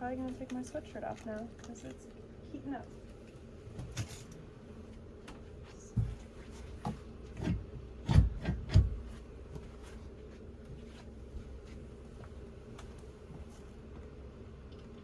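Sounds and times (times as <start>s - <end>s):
dull knocks and thumps: 5.3s - 10.0s.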